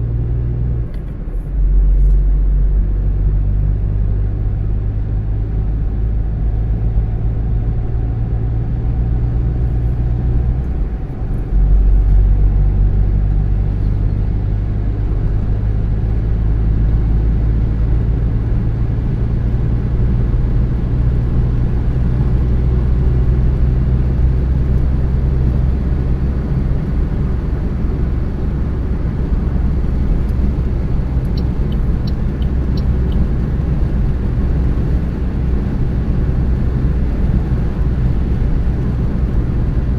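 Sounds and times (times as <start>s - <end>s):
car engine and road noise: 0.0s - 39.9s
faint high ticks: 31.2s - 33.3s.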